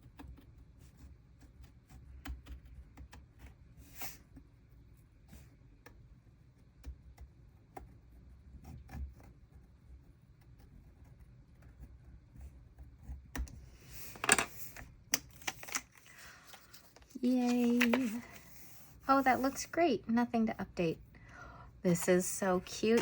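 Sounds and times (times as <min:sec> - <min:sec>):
tapping and rustling stickers: 0:13.4 - 0:20.3, 0:21.9 - 0:23.0
paper rustling: 0:13.8 - 0:19.8, 0:21.9 - 0:23.0.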